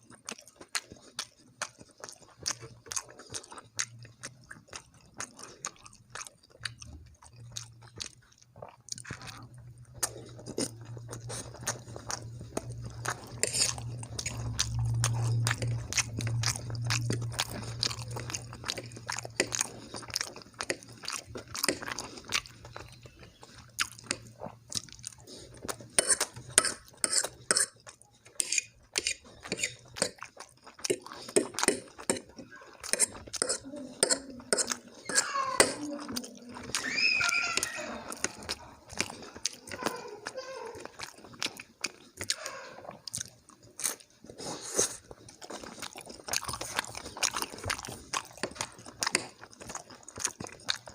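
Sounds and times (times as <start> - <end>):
person chewing food: 0.0 - 50.9
steady low hum: 9.2 - 21.6.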